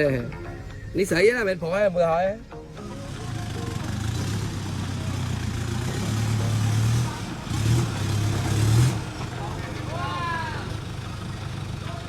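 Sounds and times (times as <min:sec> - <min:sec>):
off-road vehicle engine running: 0:02.6 - 0:12.0.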